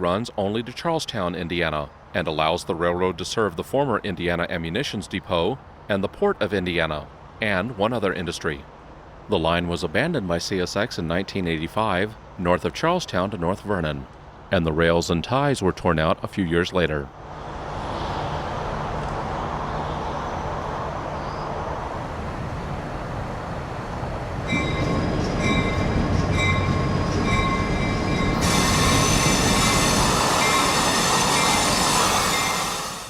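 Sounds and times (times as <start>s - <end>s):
locomotive engine hum: 17.1s - 33.0s
train rolling on rails: 17.3s - 33.0s
wheel squeal: 24.5s - 33.0s.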